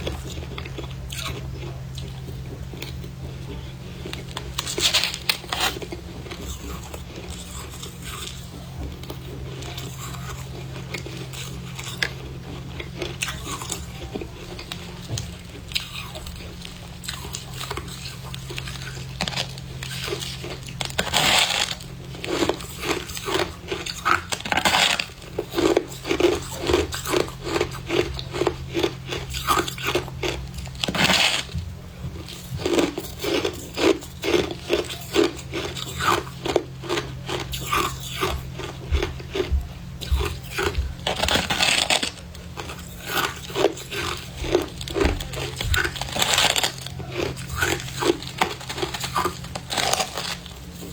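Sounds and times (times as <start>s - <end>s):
frost being chewed and crunched: 0.0s - 50.9s.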